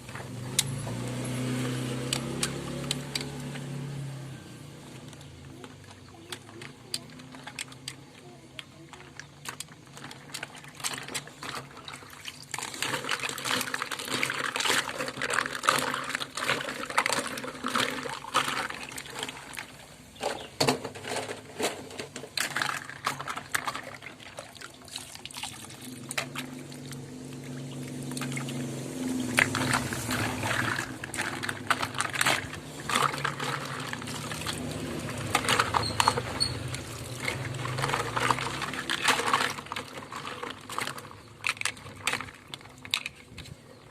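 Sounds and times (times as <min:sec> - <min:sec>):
toys clicking and knocking: 0:00.0 - 0:03.9, 0:04.6 - 0:24.8, 0:25.6 - 0:43.9
water splashing over toy cars: 0:00.0 - 0:43.9
running water: 0:22.4 - 0:43.9.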